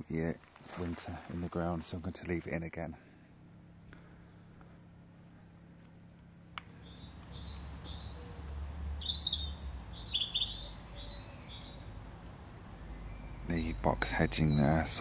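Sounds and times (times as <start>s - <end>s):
songbird chirping: 6.6s - 15.0s.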